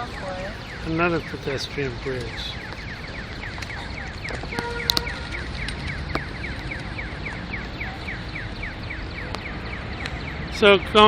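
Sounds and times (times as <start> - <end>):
pedestrian crossing signal chirping: 0.0 - 11.0.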